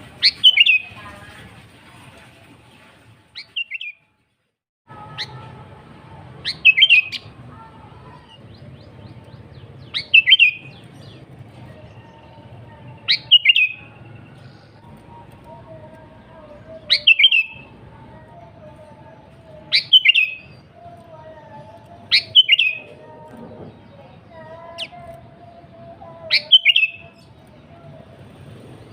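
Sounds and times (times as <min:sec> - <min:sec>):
bird singing whistled phrases: 0:00.2 - 0:00.8, 0:03.4 - 0:04.0, 0:06.4 - 0:07.2, 0:09.8 - 0:10.8, 0:12.9 - 0:14.2, 0:16.8 - 0:17.7, 0:19.7 - 0:20.6, 0:22.1 - 0:22.9, 0:26.3 - 0:27.2.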